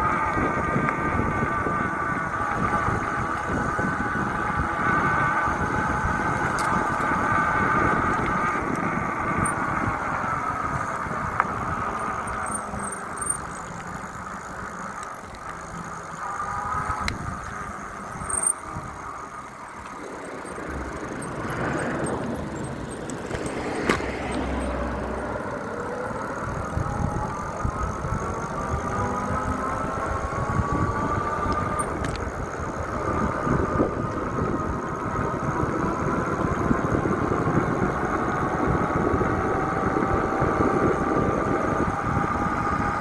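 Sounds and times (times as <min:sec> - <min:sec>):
vehicle engine: 0:00.0 - 0:43.0
wind rumbling on microphone: 0:00.0 - 0:43.0
sharp clicks: 0:05.8 - 0:32.6.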